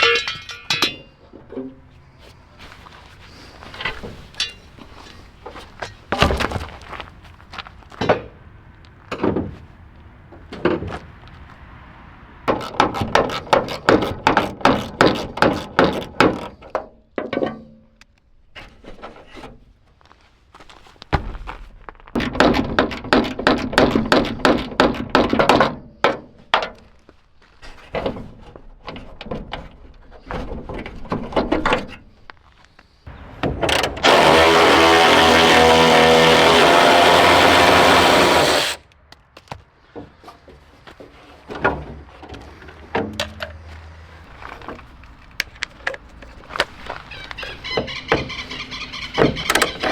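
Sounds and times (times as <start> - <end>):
power tool running: 33.3 - 38.8.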